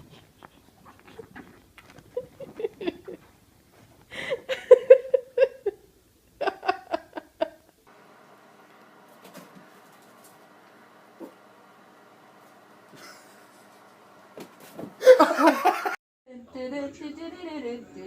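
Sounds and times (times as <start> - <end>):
person laughing: 2.0 - 3.3, 4.1 - 7.8, 13.0 - 13.7, 15.0 - 16.0.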